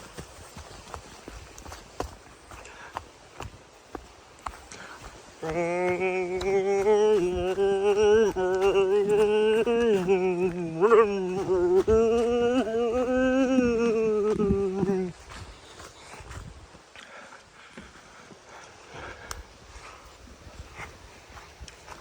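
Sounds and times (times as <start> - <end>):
person singing long held notes: 5.4 - 15.2.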